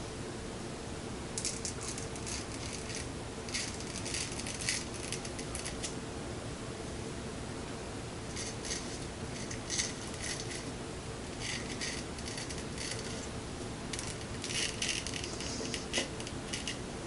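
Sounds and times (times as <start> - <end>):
razor scraping hair off skin: 11.4 - 13.3.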